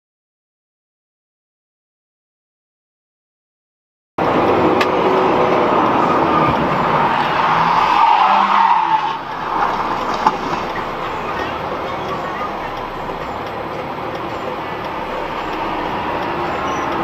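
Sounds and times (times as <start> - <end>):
car tires skidding: 4.2 - 17.0.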